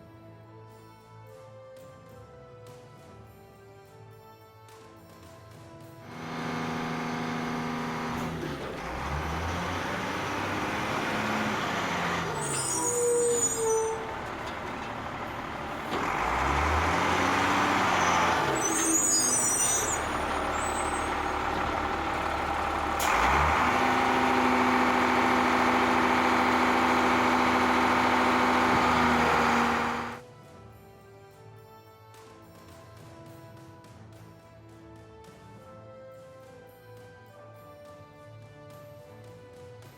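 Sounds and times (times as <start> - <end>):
heavy truck engine revving: 6.1 - 30.2.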